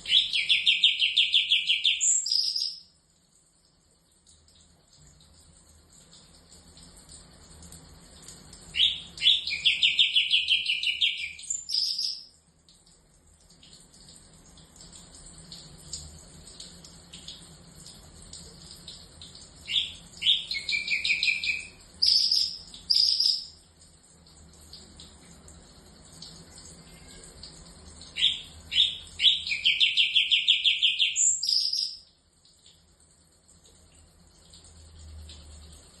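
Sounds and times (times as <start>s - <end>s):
bird singing rapid trilled notes: 0.0s - 2.9s, 8.8s - 12.3s, 19.6s - 23.6s, 28.1s - 32.1s
faint high chirping: 0.1s - 3.0s, 8.7s - 12.4s, 19.7s - 23.6s, 26.5s - 27.5s, 28.1s - 32.1s.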